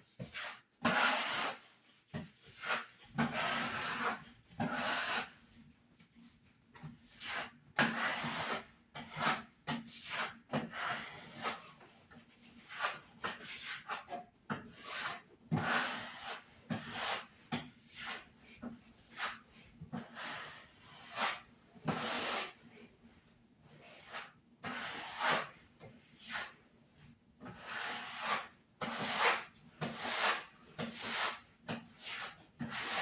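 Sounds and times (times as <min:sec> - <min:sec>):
hand rubbing and scraping: 0:00.0 - 0:33.0.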